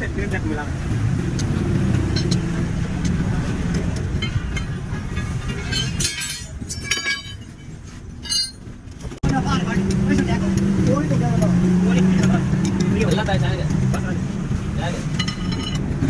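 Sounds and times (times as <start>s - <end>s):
vehicle engine humming: 0.0s - 16.0s
sharp metallic clinks: 4.2s - 8.7s, 15.2s - 15.9s.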